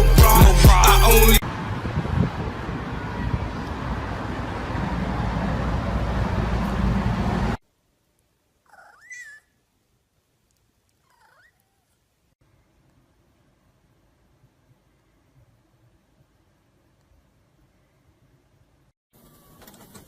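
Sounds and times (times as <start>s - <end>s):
loud rushing noise: 0.0s - 7.6s
cat meowing: 11.1s - 11.9s.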